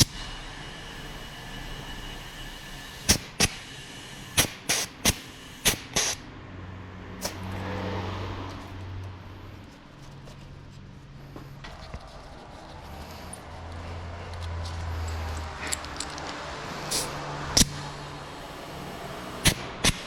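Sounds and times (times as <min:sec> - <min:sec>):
hard objects clacking together: 0:14.3 - 0:16.4.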